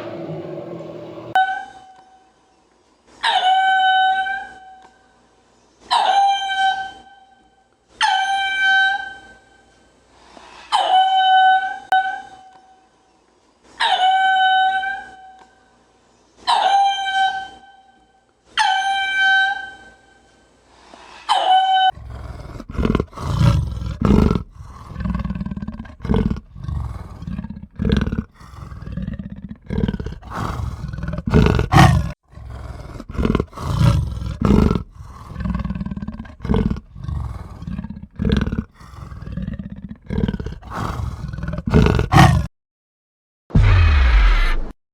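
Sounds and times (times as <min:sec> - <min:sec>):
rough pulsing animal roar: 0:00.0 - 0:01.4, 0:22.0 - 0:42.5.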